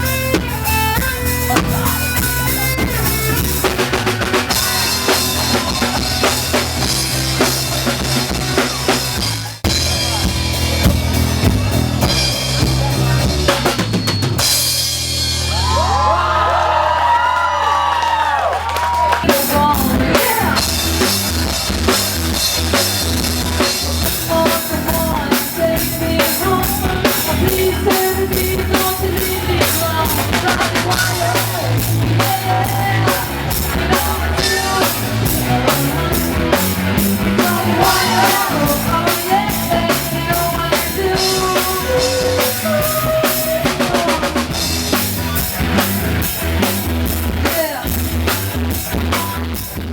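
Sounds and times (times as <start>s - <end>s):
drum kit steady beat: 0.0s - 16.1s, 19.1s - 49.9s
rock band playing: 0.0s - 49.9s.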